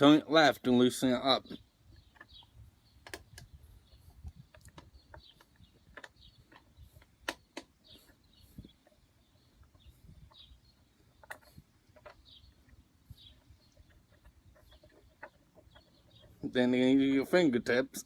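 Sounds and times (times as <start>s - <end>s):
faint bird chirps: 1.4s - 17.2s
small plastic clicks and taps: 2.1s - 3.5s, 4.3s - 7.8s.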